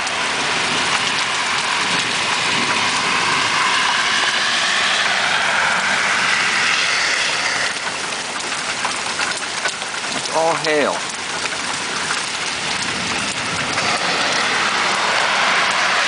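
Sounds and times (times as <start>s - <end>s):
heavy hail clattering: 7.8s - 16.0s.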